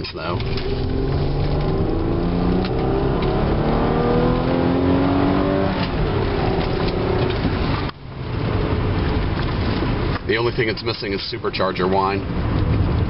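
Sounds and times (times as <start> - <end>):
car engine accelerating hard: 0.2 - 10.2.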